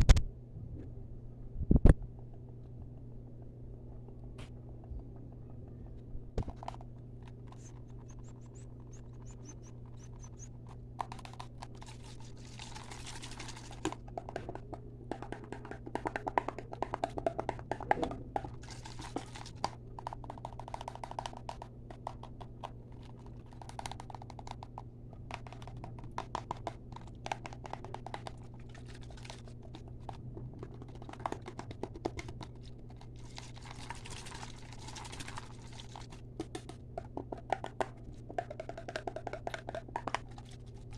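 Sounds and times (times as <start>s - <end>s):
steady low hum: 0.0s - 40.9s
fast sharp tapping: 7.5s - 11.4s, 14.1s - 18.5s, 36.5s - 40.2s.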